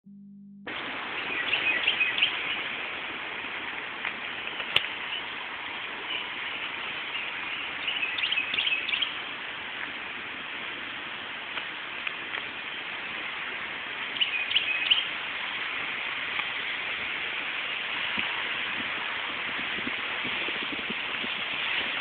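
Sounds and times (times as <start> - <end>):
outdoor background hiss: 0.6 - 22.0
bird chirps: 1.2 - 2.7, 6.1 - 9.2, 14.2 - 15.1.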